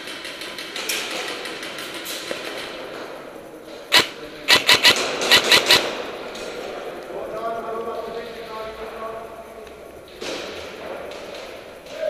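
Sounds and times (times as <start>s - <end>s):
steady rustling hiss: 0.0s - 12.0s
airsoft guns firing: 3.9s - 6.1s.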